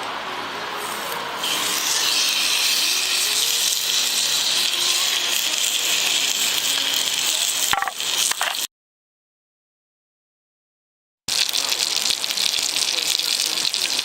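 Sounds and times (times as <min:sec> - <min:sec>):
food sizzling in a pan: 0:00.7 - 0:08.7, 0:11.3 - 0:14.0.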